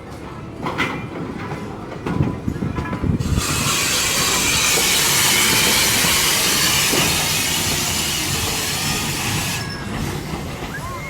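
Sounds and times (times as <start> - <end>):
loud hiss of venting steam: 3.2 - 11.0.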